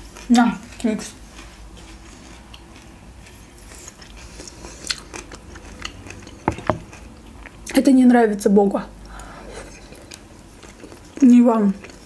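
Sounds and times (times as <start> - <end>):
quiet chewing: 0.1 - 7.8, 9.0 - 12.0
short sharp knocks: 6.5 - 6.9.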